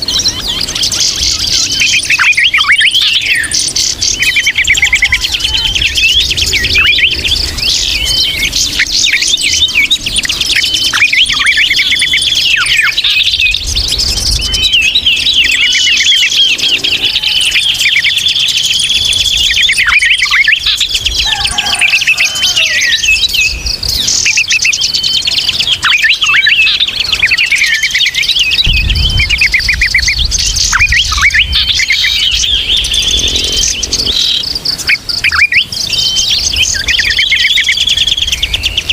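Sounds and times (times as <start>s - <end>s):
many small birds chirping: 0.0s - 38.9s
low rumble: 28.5s - 34.2s.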